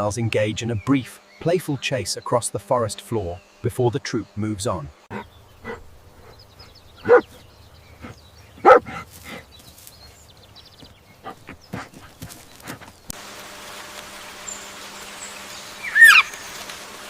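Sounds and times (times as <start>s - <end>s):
dog barks: 7.0s - 7.4s, 8.6s - 9.4s
steady hiss: 12.2s - 17.0s.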